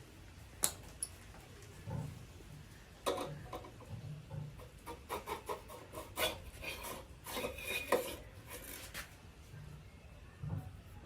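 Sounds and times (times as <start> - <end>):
metal insert scraping in exhaust: 4.2 - 9.0.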